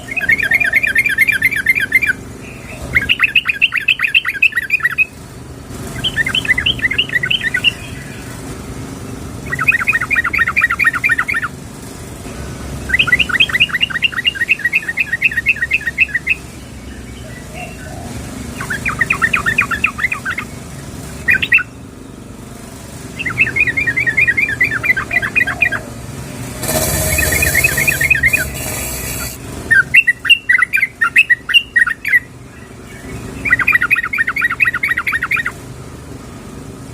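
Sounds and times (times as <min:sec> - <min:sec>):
bird bubbling song: 0:00.0 - 0:05.1, 0:09.4 - 0:11.5, 0:12.9 - 0:20.6, 0:23.2 - 0:25.9, 0:29.7 - 0:35.6.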